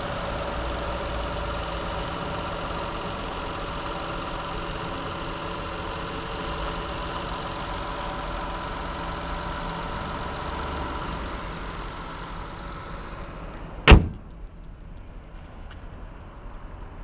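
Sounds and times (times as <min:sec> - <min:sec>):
car engine idling: 0:00.0 - 0:17.0
car bonnet slamming shut: 0:13.8 - 0:14.4.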